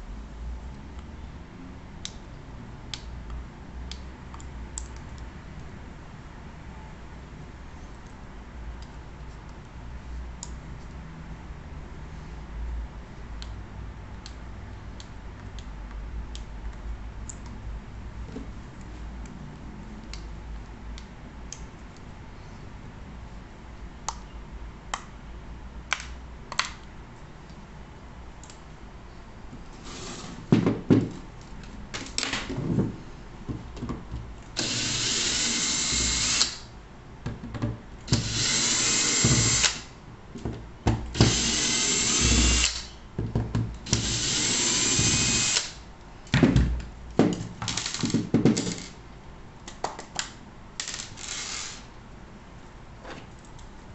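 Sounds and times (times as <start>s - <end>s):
power drill running: 34.6s - 36.6s, 38.1s - 39.9s, 41.2s - 42.9s, 43.9s - 45.8s, 51.2s - 51.9s.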